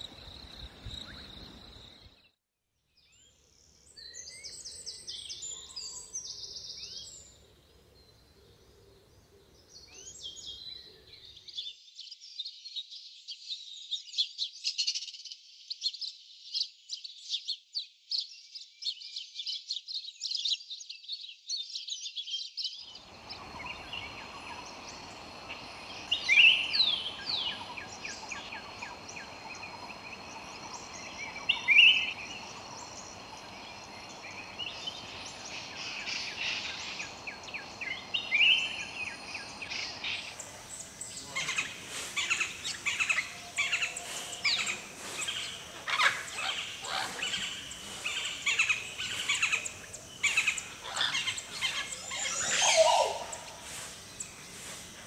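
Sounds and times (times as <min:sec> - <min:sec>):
background hiss: 0:22.9 - 0:55.0
birds chirping rapidly: 0:22.9 - 0:55.0
gliding bird calls: 0:23.0 - 0:55.0.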